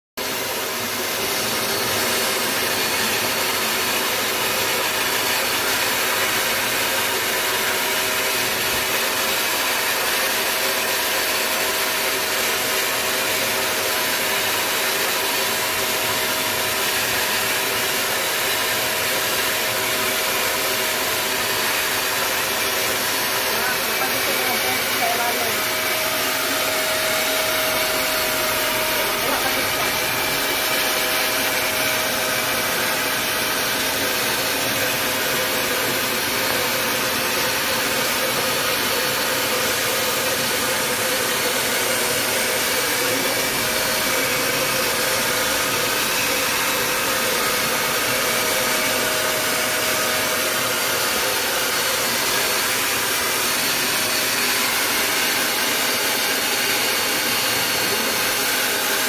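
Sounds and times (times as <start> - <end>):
motor-driven machine whir and hiss: 0.2 - 59.0.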